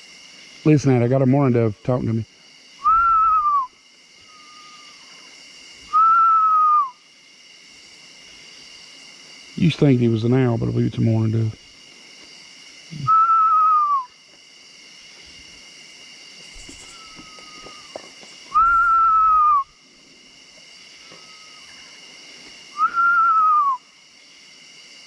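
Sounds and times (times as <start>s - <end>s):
man whistling bird call: 2.8s - 5.0s, 5.9s - 7.0s, 12.9s - 14.2s, 16.6s - 19.8s, 21.0s - 21.8s, 22.7s - 23.9s
faint bird call: 2.8s - 5.3s, 16.4s - 19.8s, 21.0s - 22.0s.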